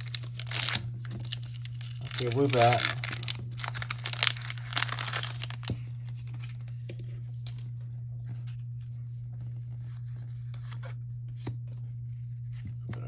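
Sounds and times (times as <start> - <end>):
trading cards sliding: 0.0 - 5.7
steady low hum: 0.0 - 13.0.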